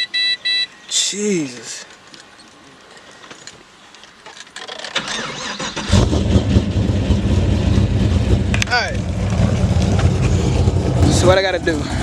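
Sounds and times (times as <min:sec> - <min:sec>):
car engine cranking: 0:04.5 - 0:12.0
engine idling with deep rumble: 0:05.9 - 0:12.0.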